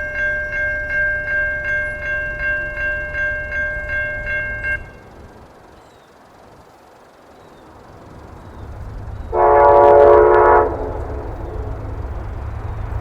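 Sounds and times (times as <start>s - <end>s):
railroad crossing bell ringing: 0.0s - 7.6s, 8.3s - 13.0s
low rumble: 8.6s - 13.0s.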